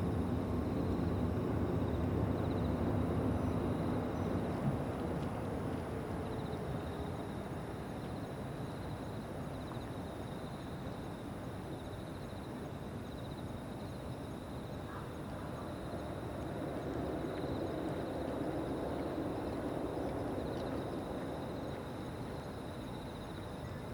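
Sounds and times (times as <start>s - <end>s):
insects trilling: 8.2s - 23.9s.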